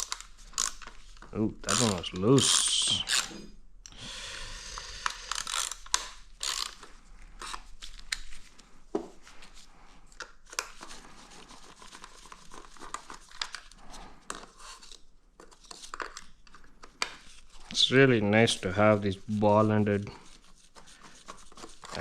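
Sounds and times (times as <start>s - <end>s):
metal tool clicks and scrapes: 1.7s - 4.0s.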